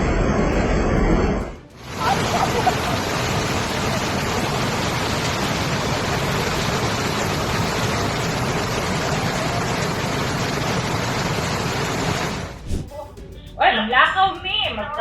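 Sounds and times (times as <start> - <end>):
floodwater rushing: 1.8 - 12.6.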